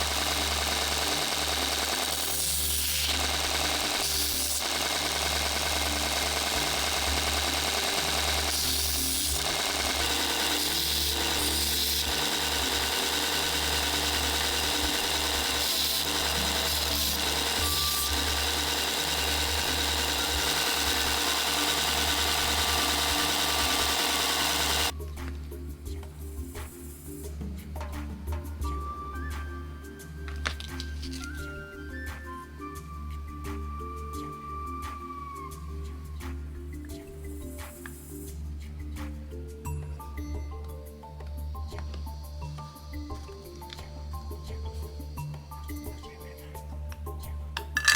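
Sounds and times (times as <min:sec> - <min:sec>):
power tool running: 0:00.0 - 0:25.0.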